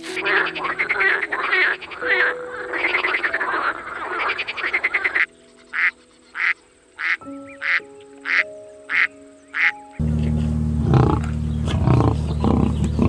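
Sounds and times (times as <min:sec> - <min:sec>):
rasping pulsed animal calls: 0:10.0 - 0:13.0
short animal calls: 0:10.0 - 0:13.0.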